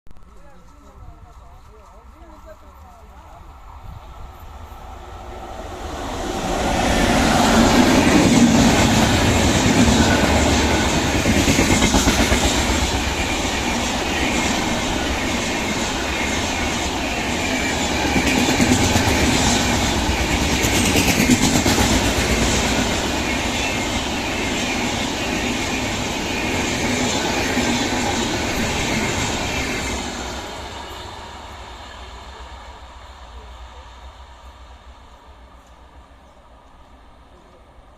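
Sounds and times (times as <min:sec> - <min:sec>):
train wheels clattering: 0:06.3 - 0:31.2.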